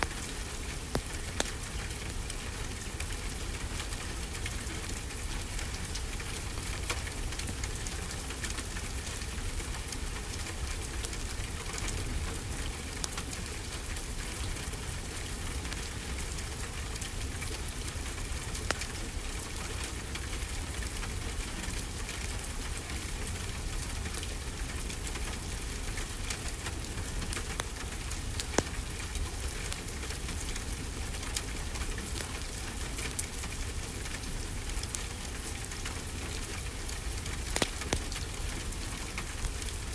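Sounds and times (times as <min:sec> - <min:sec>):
fire pops: 0:00.0 - 0:02.4, 0:18.5 - 0:19.1, 0:26.0 - 0:30.0, 0:36.8 - 0:39.8
steady rainfall: 0:00.0 - 0:39.9
wood fire crackling: 0:00.0 - 0:39.9.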